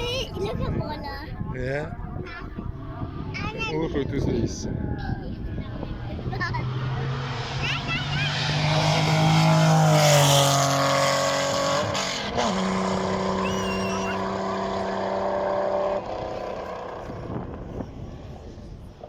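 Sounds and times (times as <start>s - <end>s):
race car engine passing: 5.5s - 18.6s.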